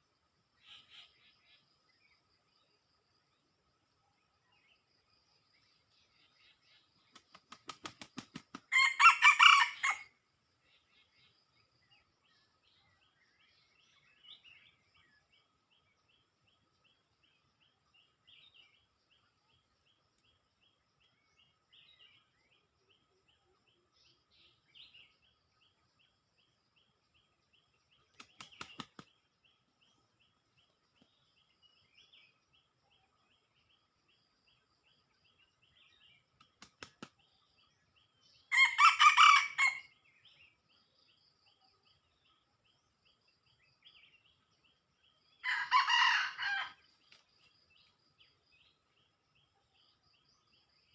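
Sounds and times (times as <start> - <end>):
rooster crowing: 8.7 - 10.1, 38.5 - 39.9, 45.4 - 46.8
faint steady chirping: 9.6 - 50.9.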